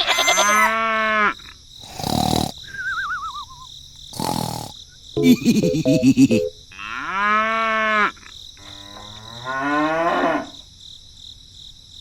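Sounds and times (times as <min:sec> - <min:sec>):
high insect-like hiss: 0:01.6 - 0:05.1
cow mooing: 0:08.7 - 0:10.6.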